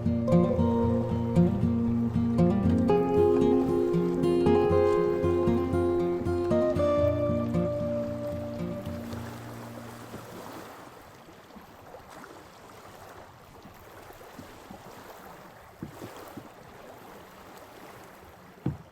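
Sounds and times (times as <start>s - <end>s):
music: 0.0s - 9.9s
small waves lapping: 0.0s - 18.9s
soft knocks: 18.6s - 18.9s.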